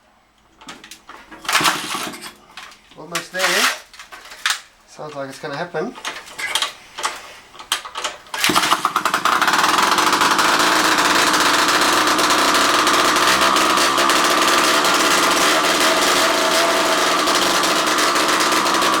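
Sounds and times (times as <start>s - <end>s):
scooter engine sputtering: 1.5s - 2.3s, 8.4s - 19.0s.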